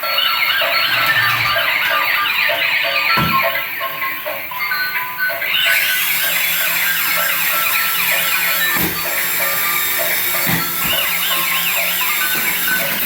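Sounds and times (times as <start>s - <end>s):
electronic beeping: 0.0s - 3.8s
toy police siren wailing: 0.0s - 13.0s.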